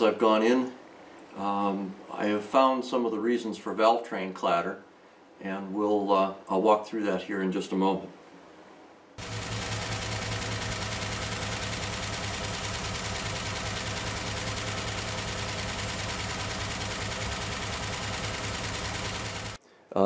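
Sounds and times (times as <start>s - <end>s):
engine idling with valve clatter: 9.2s - 19.6s.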